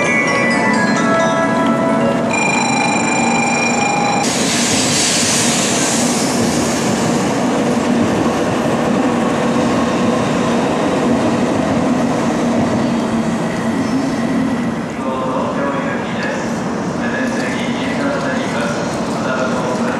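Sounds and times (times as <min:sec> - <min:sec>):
hiss: 0:04.5 - 0:07.0.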